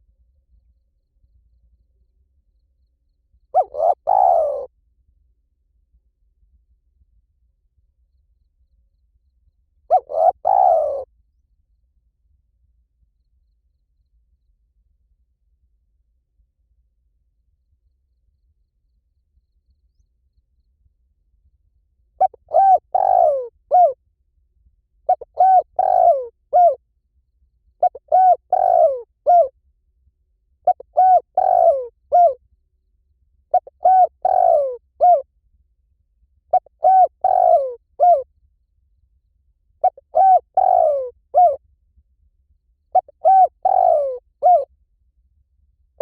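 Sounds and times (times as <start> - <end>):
dove cooing: 3.5 - 4.7, 9.9 - 11.1, 22.2 - 24.0, 25.1 - 26.8, 27.8 - 29.5, 30.6 - 32.4, 33.5 - 35.2, 36.5 - 38.2, 39.8 - 41.6, 42.9 - 44.7.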